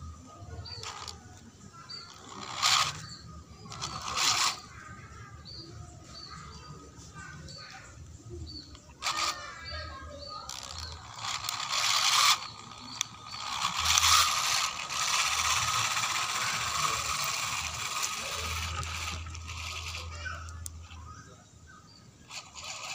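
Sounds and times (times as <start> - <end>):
gearbox whirring and rattling: 0.0 - 21.3, 22.2 - 22.9
gearbox whine: 0.0 - 22.9.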